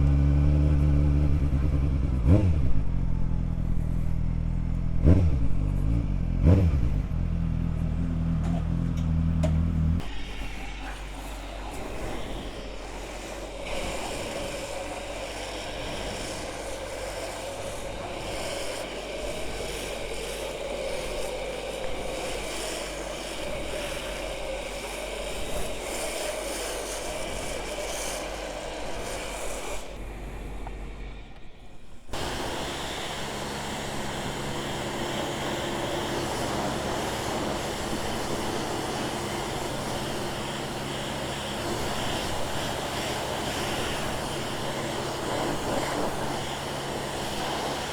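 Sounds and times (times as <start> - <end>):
motorcycle engine revving: 0.0 - 10.1, 29.8 - 47.9.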